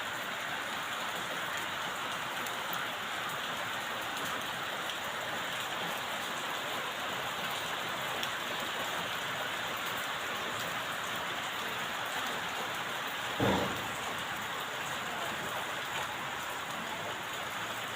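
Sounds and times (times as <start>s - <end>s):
steady rain falling: 0.0s - 17.9s
brief loud thud: 13.4s - 14.2s.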